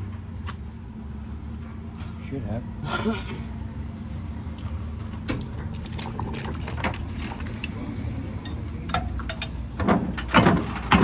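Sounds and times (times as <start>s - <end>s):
low steady hum: 0.0s - 11.0s
hand tools clanking on metal: 8.4s - 11.0s.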